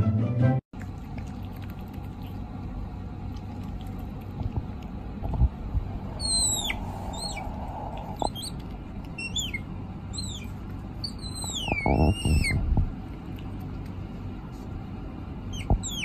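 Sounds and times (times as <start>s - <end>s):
bird whistling call: 6.2s - 7.6s, 9.2s - 12.6s.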